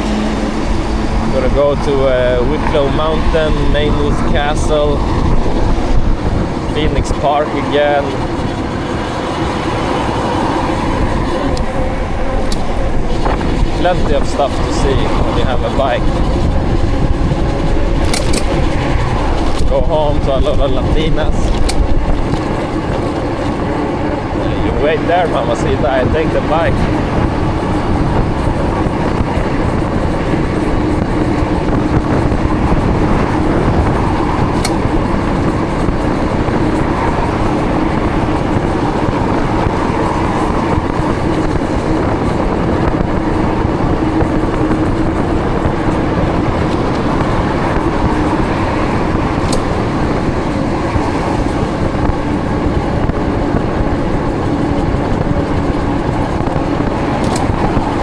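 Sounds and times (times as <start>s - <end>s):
tyre noise on wet road: 0.0s - 58.0s
wind rushing: 0.0s - 58.0s.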